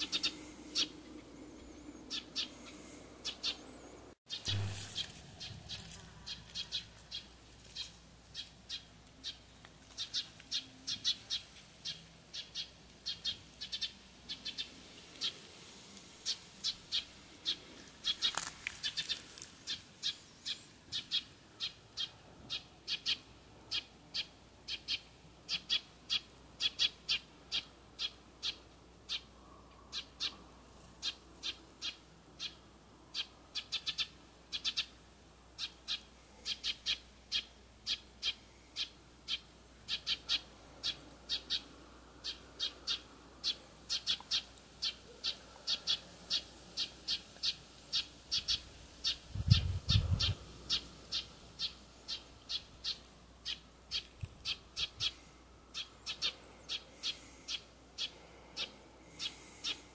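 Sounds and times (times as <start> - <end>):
bird calling sharp note: 4.3 - 6.8.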